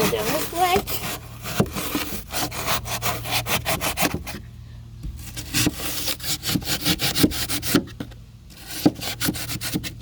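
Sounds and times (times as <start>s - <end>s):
knife sawing through foam: 0.0s - 4.4s, 5.2s - 7.9s, 8.6s - 10.0s.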